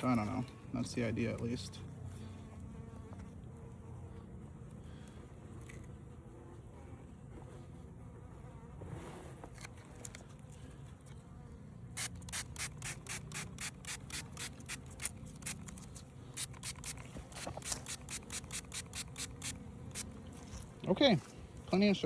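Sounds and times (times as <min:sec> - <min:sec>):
honeybees buzzing: 0:00.0 - 0:22.0
spray bottle hissing squirts: 0:12.0 - 0:20.1.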